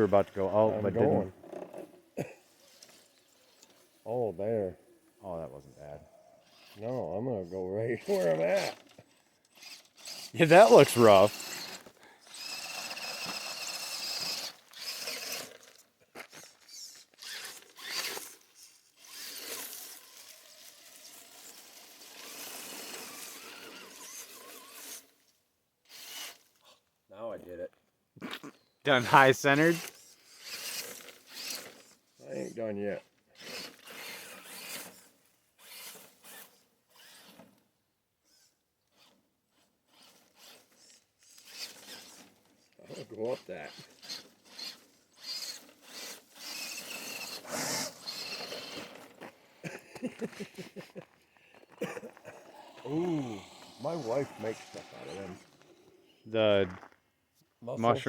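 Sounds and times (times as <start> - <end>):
toy truck tires grinding on rock: 0.0 - 27.6, 28.2 - 58.0
electric motor and gears whirring: 5.1 - 25.2, 25.8 - 26.6, 28.9 - 32.6, 33.4 - 37.7, 38.3 - 49.4, 51.8 - 56.9.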